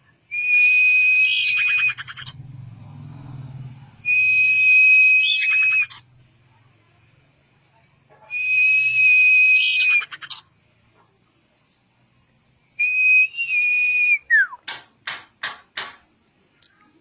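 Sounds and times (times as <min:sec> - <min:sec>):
bird whistling song: 0:00.2 - 0:02.4, 0:04.0 - 0:06.0, 0:08.3 - 0:10.4, 0:12.8 - 0:14.7.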